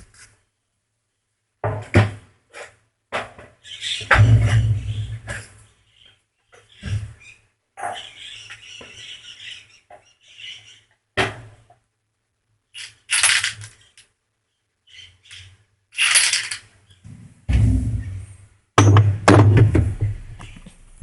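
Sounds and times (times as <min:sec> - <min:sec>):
metal parts scraping and clinking: 0:12.8 - 0:14.0, 0:15.2 - 0:16.7
faint low hum: 0:16.9 - 0:18.7.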